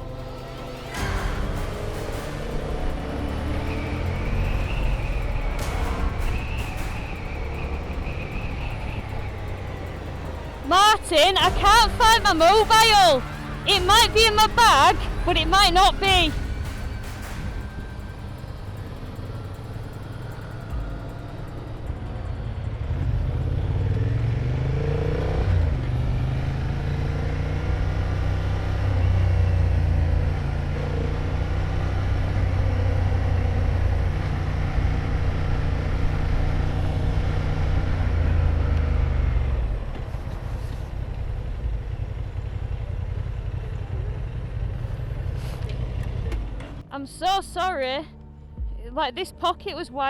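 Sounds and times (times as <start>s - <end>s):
motorcycle engine pulling away: 17.8s - 46.8s.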